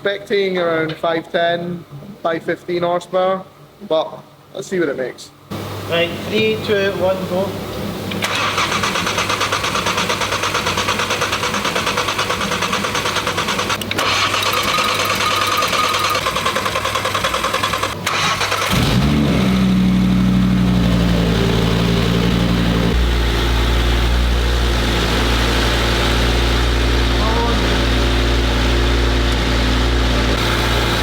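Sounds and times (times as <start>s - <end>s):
engine cranking on starter: 8.1s - 20.4s
car engine idling: 18.7s - 31.0s.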